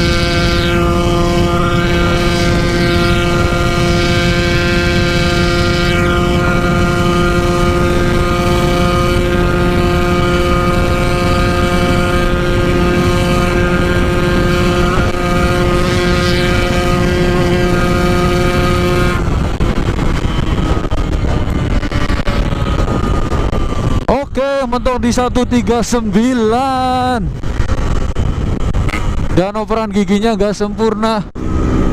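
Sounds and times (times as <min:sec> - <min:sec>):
motorcycle engine at high revs: 0:00.0 - 0:24.1, 0:31.4 - 0:31.9
road noise: 0:00.0 - 0:31.9
wind rush: 0:00.0 - 0:31.9.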